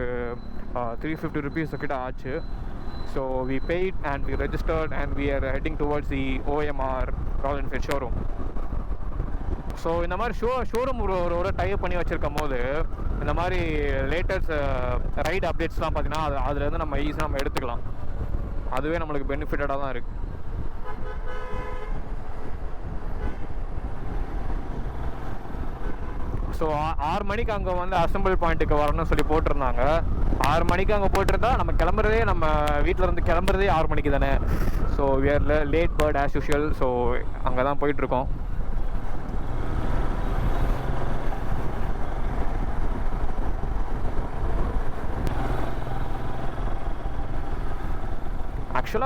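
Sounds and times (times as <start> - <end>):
motorcycle engine rumble: 0.0 - 49.0
wind buffeting on microphone: 4.2 - 49.0
vehicle horn: 20.8 - 22.1, 23.1 - 23.6, 25.8 - 26.3.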